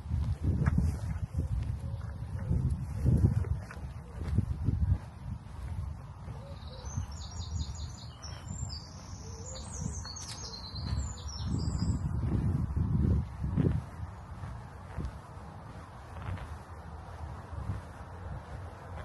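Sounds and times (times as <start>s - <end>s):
small songbird singing: 6.2s - 12.6s.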